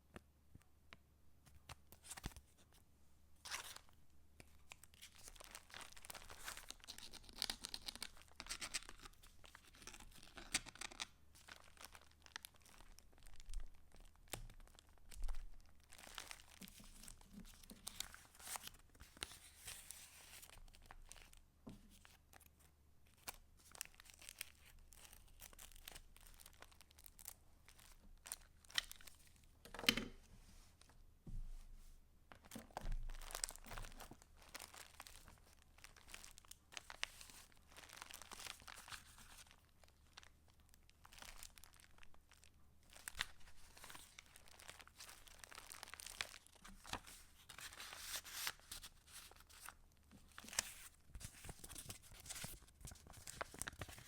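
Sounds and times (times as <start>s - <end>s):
paper rustling and crinkling: 4.5s - 21.3s, 32.4s - 39.6s, 42.9s - 54.0s.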